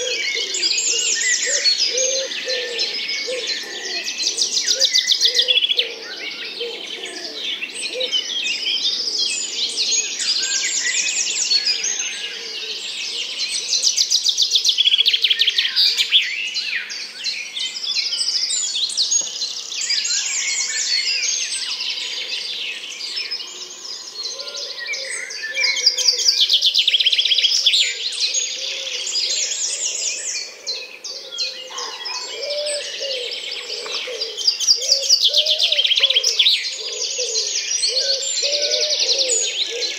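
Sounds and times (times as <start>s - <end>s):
lower bird calls: 0.0s - 13.8s, 23.2s - 39.9s
small birds chirping and trilling: 0.0s - 39.9s.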